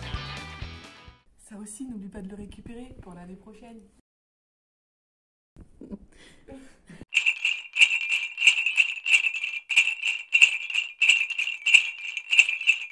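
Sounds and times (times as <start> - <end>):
jingle bells shaken: 7.1 - 12.9.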